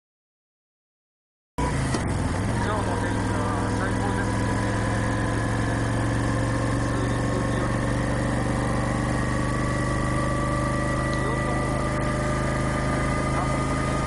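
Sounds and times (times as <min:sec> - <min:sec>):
motorcycle engine running: 0:01.6 - 0:14.0.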